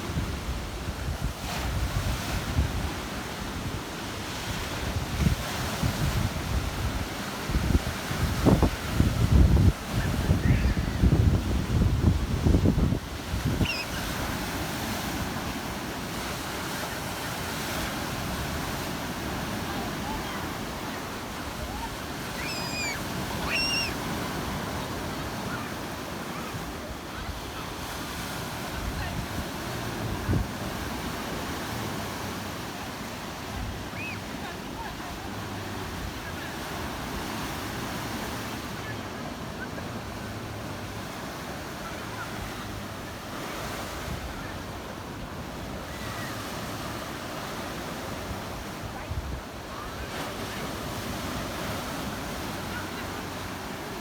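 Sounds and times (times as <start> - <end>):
sea waves washing on shore: 0.0 - 54.0
wind rumbling on microphone: 4.6 - 14.5
bird calling: 13.5 - 14.2, 21.8 - 24.3, 33.9 - 34.3.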